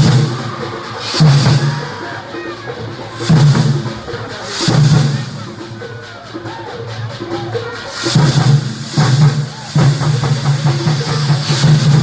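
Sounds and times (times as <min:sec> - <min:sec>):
heavy bass drum strikes: 0:00.0 - 0:02.0, 0:08.1 - 0:12.0
percussion band playing: 0:00.0 - 0:12.0.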